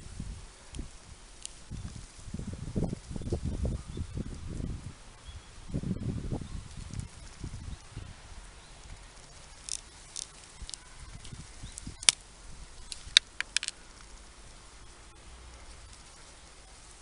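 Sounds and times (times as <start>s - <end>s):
hand tool clicks: 12.9s - 13.8s.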